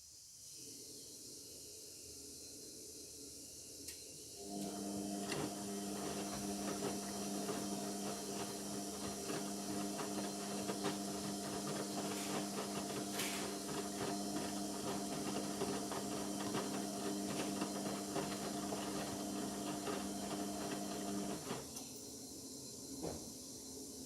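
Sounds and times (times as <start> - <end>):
washing machine motor hum: 4.4 - 21.8.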